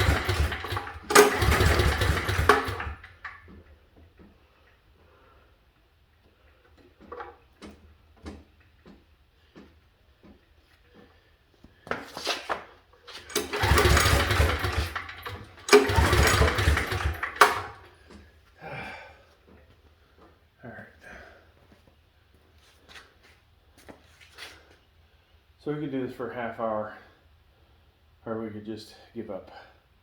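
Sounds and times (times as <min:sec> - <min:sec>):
generator engine cranking: 0:00.0 - 0:05.2, 0:12.4 - 0:18.3.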